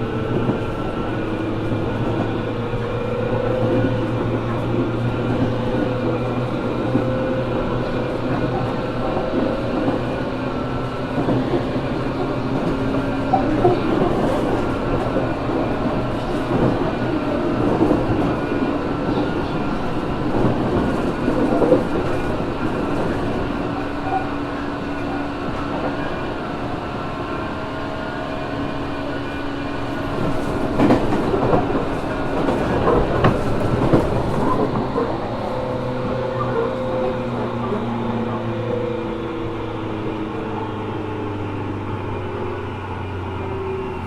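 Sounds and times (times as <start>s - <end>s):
train motor and gear hum: 0.0s - 44.0s
wheel and track rumble: 0.0s - 44.0s
wheels clacking over rail joints: 29.9s - 39.0s.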